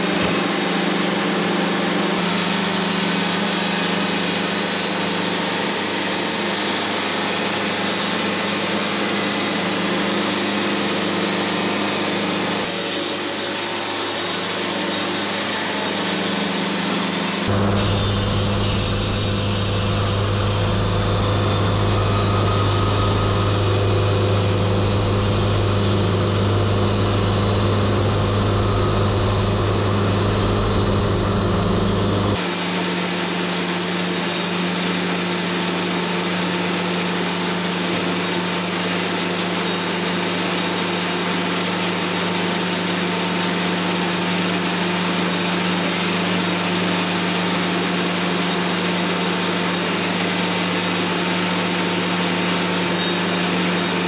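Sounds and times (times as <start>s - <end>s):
band sawmill sawing log: 0.0s - 54.0s.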